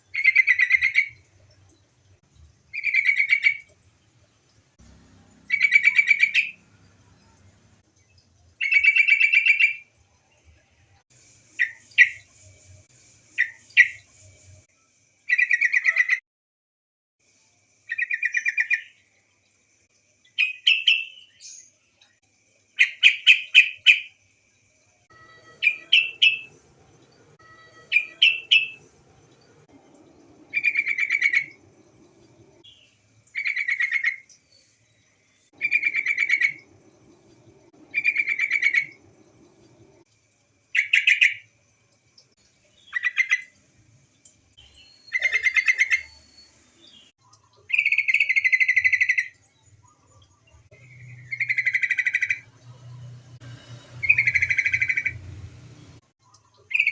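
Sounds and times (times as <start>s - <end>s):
bulbul bubbly chattering call: 0.1s - 1.2s, 25.2s - 34.3s, 35.6s - 37.0s, 37.8s - 40.0s, 45.1s - 46.2s, 47.4s - 52.7s, 56.5s - 56.9s.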